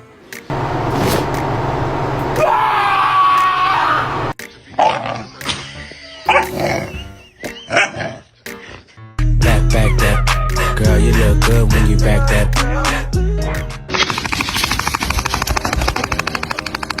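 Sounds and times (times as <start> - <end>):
background music: 4.3 - 14.0.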